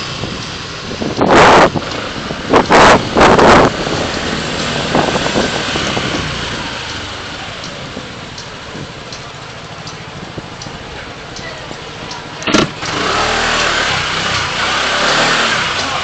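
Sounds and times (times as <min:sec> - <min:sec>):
traffic and road noise: 0:00.0 - 0:16.0.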